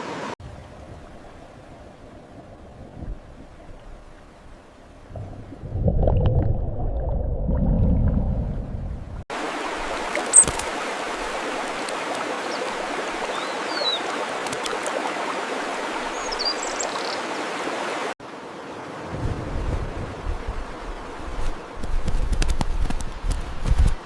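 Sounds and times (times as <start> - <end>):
stream water flowing: 0.0 - 19.3
wind rumble on microphone: 0.4 - 9.2, 19.1 - 24.0
high bird chirps: 10.3 - 10.6.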